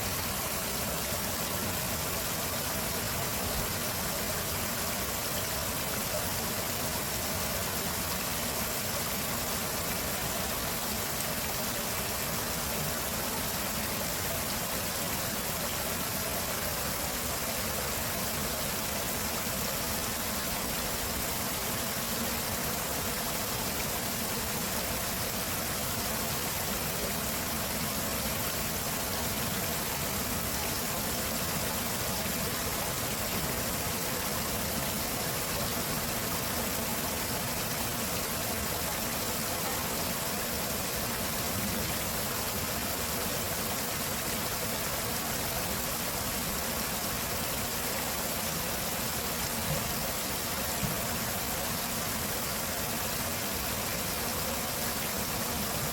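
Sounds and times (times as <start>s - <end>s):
water rushing: 0.0s - 55.9s.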